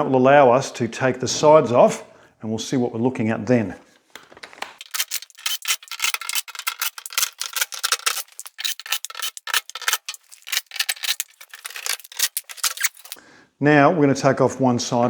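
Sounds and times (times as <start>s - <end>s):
screwdriver turning screws in metal: 4.8s - 13.2s.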